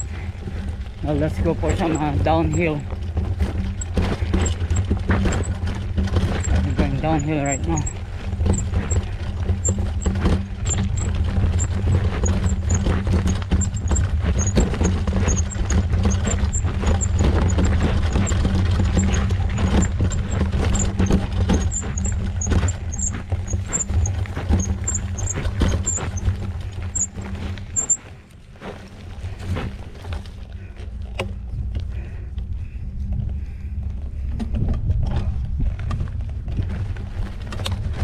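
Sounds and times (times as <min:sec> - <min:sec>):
bike rattling and knocking: 0:00.0 - 0:38.0
wind rumbling over microphone: 0:28.9 - 0:38.0.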